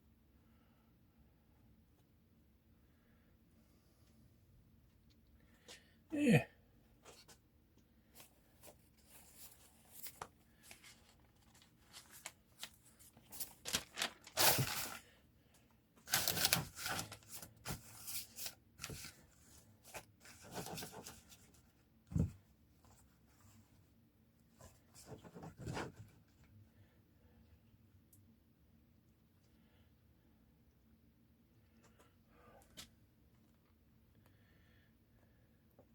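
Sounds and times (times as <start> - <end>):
newspaper tearing: 13.4 - 15.0, 16.1 - 17.4.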